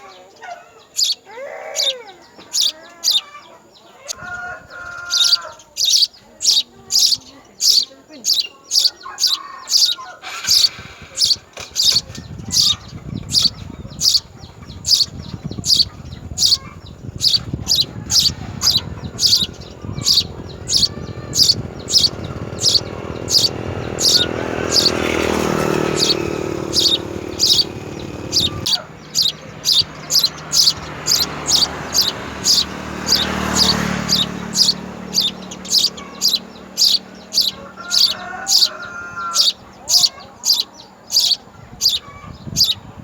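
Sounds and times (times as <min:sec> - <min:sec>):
sparrow chirping: 0:00.0 - 0:43.0.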